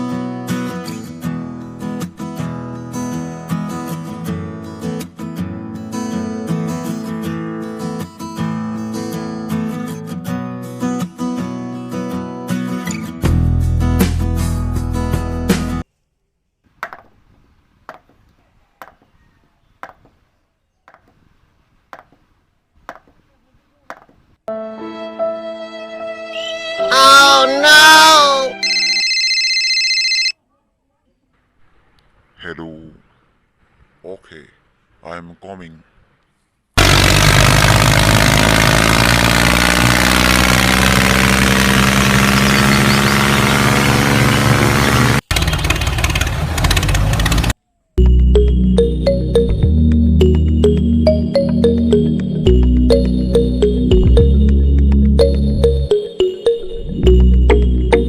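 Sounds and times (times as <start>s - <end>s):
small electric motor whining: 36.8s - 44.9s.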